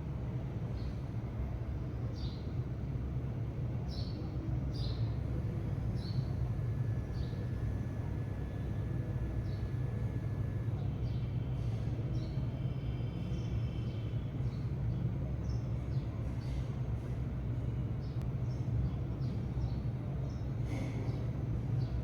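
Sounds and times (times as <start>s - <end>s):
sparrows chirping: 3.9s - 11.4s
steady low rumble: 5.2s - 10.8s.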